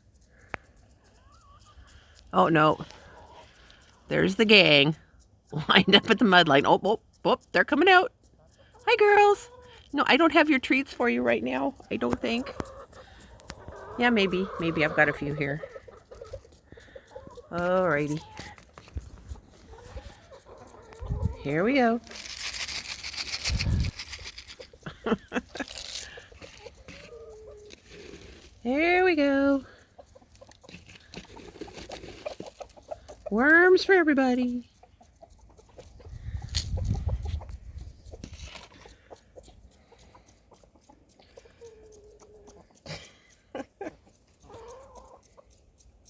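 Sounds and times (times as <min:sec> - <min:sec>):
hens clucking: 0:00.1 - 0:46.0
hens calling: 0:11.2 - 0:34.1
packet rustling and crinkling: 0:22.0 - 0:24.8.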